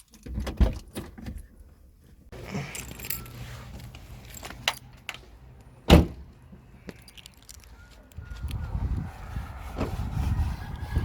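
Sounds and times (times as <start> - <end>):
keys jangling: 2.5 - 4.8.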